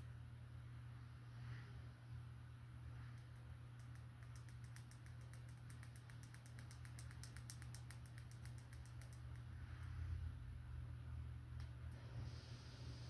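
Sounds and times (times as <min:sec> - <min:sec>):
low steady hum: 0:00.0 - 0:13.0
light crisp clicks: 0:03.1 - 0:09.9.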